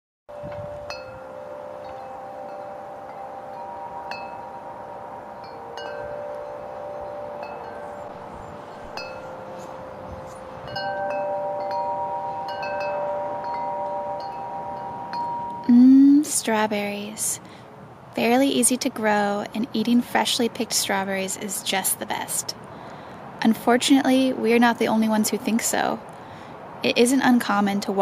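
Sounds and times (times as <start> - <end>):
wind chimes ringing: 0.3 - 17.1
wind hissing: 0.3 - 18.7.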